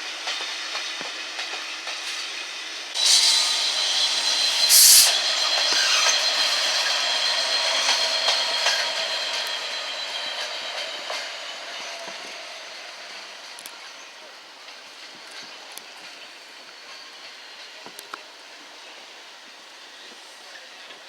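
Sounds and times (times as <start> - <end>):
train wheels clicking over rail joints: 0.1 - 19.1
burst of hiss: 3.0 - 6.2
high steady squeal: 3.0 - 14.4.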